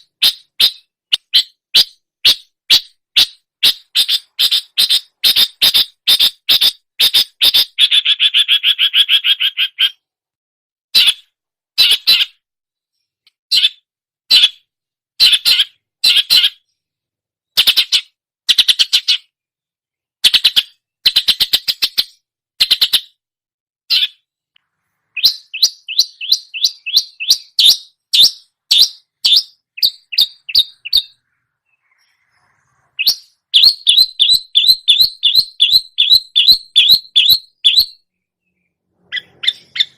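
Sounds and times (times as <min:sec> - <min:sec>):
bird singing sharp chirps and trills: 0:00.0 - 0:10.1, 0:20.2 - 0:23.2, 0:25.0 - 0:39.9.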